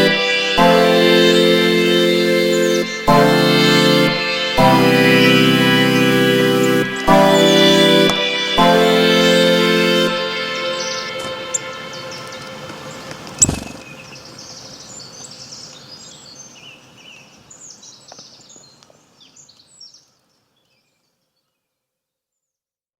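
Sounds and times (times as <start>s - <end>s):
birds chirping: 0.0s - 21.7s
outdoor ambient hiss: 9.6s - 22.6s
sharp knock: 13.4s - 13.9s.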